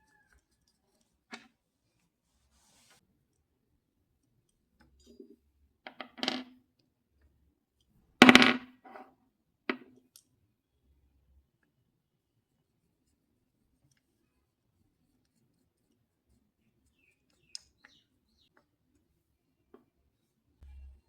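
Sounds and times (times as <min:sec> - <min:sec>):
household objects knocking: 0:08.2 - 0:08.7.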